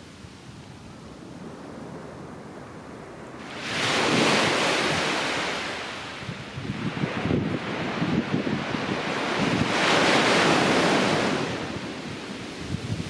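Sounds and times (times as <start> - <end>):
wind: 0.0 - 13.0
wave breaking on beach: 3.4 - 13.0.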